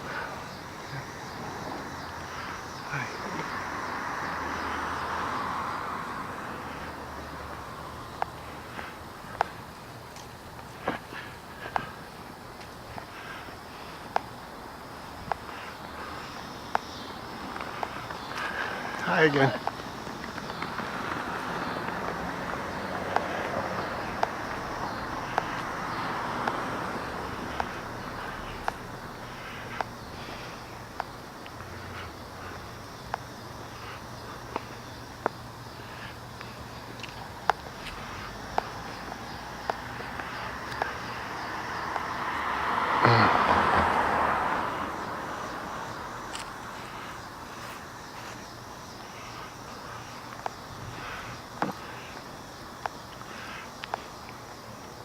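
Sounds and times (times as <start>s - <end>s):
vehicle passing: 0.0s - 52.5s
background hiss: 0.0s - 55.0s
outdoor background noise: 0.0s - 55.0s
sharp clicks: 46.3s - 46.6s.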